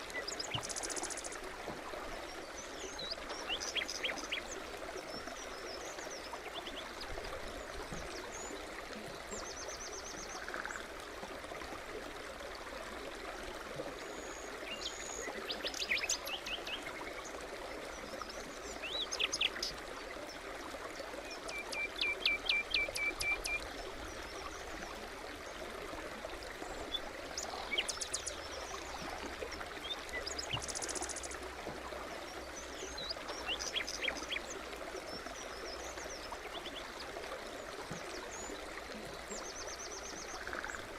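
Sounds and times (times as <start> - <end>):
stream babbling: 0.0 - 40.9
songbirds chirping and trilling: 32.2 - 40.9.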